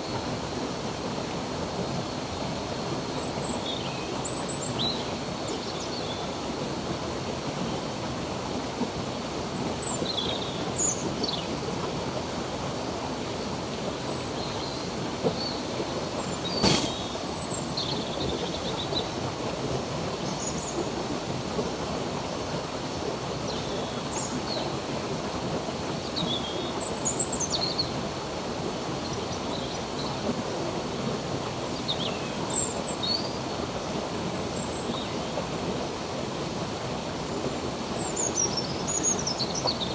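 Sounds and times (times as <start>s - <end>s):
stream water running: 0.0s - 39.9s
sharp click: 16.6s - 17.0s.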